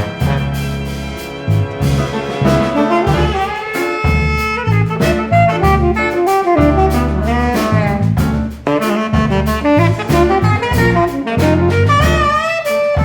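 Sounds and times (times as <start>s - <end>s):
string section: 0.0s - 5.9s
acoustic bass: 0.0s - 12.6s
brass: 0.0s - 13.0s
drums: 0.0s - 13.0s
tenor saxophone: 0.0s - 13.0s.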